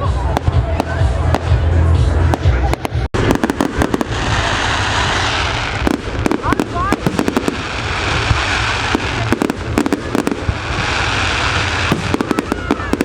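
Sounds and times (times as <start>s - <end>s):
fireworks crackling hiss: 0.0s - 13.0s
fireworks cracks and bangs: 0.0s - 13.0s.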